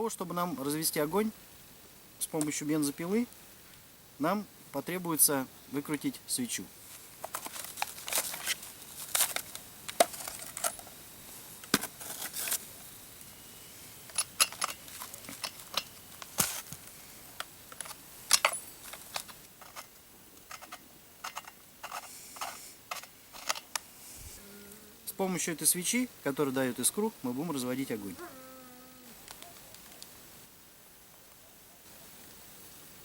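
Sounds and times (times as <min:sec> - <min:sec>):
hand tools clicking and scraping: 0:07.2 - 0:10.9, 0:14.1 - 0:23.9.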